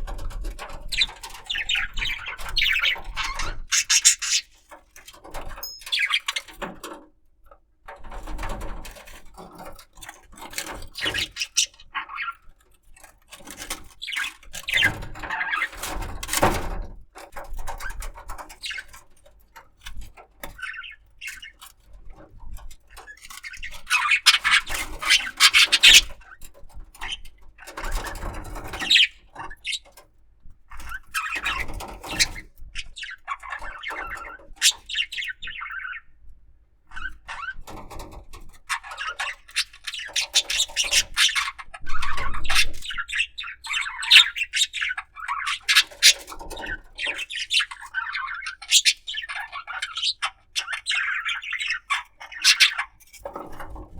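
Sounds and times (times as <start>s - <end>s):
budgerigar chattering: 0.9s - 4.6s, 23.6s - 26.1s, 28.8s - 29.8s, 38.8s - 53.0s
high bird squeaks: 0.9s - 4.6s, 5.5s - 6.6s, 47.0s - 53.0s.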